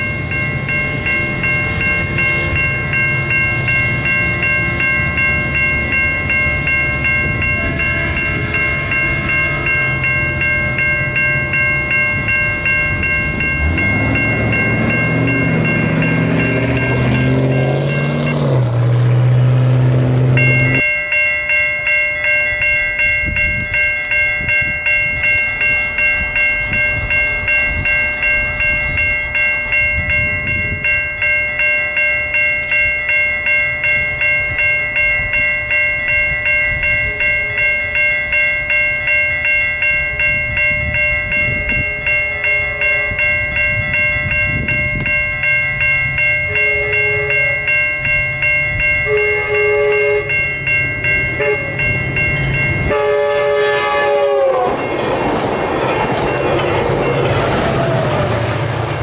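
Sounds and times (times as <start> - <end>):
crossing bell ringing: 0.0 - 59.0
train rumbling past: 0.0 - 59.0
train horn: 7.4 - 9.3, 41.7 - 43.3, 46.5 - 47.7, 49.0 - 50.4, 51.4 - 51.8, 52.8 - 54.9.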